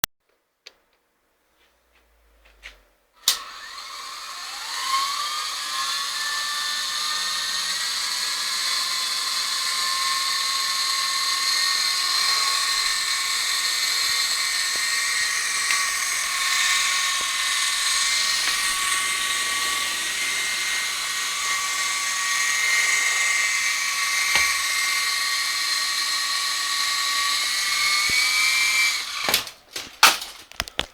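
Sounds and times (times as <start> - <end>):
motor switch click: 3.2 - 3.9
small electric motor whine: 3.2 - 30.3.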